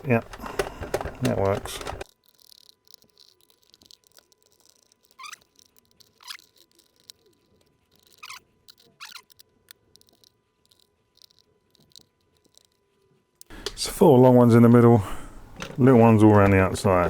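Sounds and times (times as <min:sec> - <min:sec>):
screws squeaking in plastic: 0:00.0 - 0:13.5.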